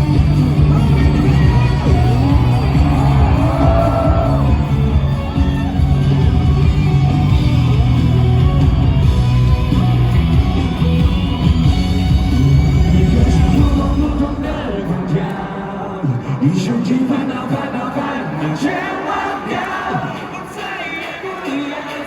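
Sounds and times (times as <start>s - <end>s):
live rock band playing loudly: 0.0s - 14.5s.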